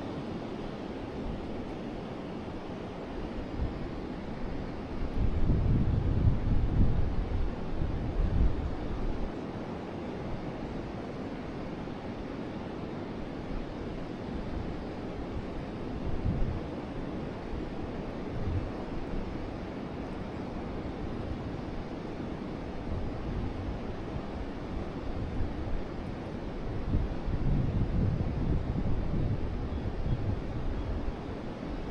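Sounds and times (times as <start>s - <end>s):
wind buffeting microphone: 5.0s - 9.3s, 22.9s - 31.9s.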